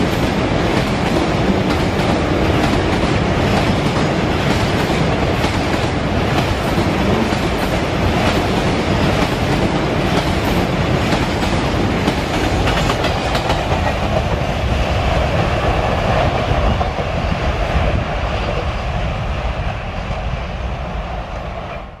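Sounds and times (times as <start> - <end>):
train wheels clattering over rail joints: 0.0 - 14.5.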